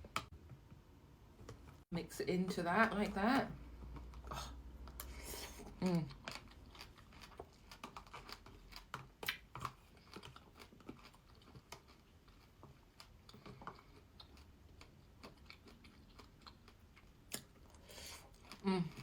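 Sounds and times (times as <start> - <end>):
quiet chewing with mouth clicks: 3.6 - 19.0.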